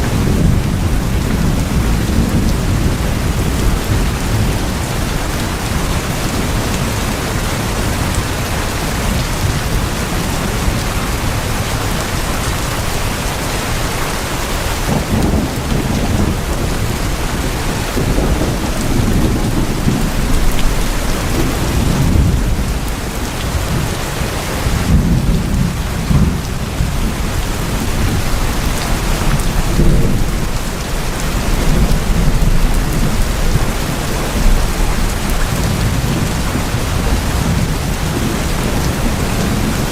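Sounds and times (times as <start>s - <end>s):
heavy rain on tin roofs: 0.0s - 39.9s.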